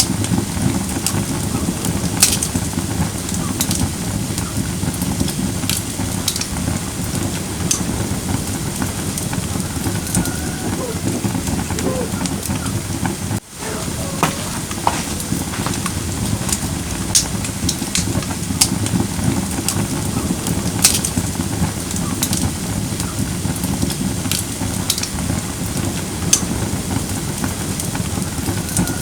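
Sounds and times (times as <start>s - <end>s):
wood crackling and popping: 13.5s - 18.7s.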